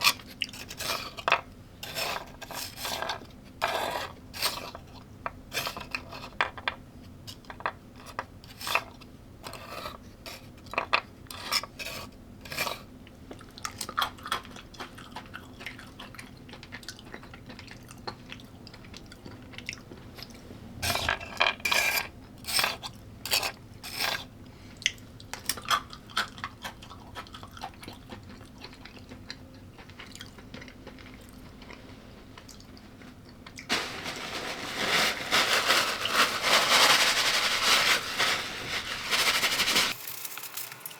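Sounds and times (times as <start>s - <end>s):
person chewing crunchy food: 13.4s - 20.4s, 24.8s - 33.7s.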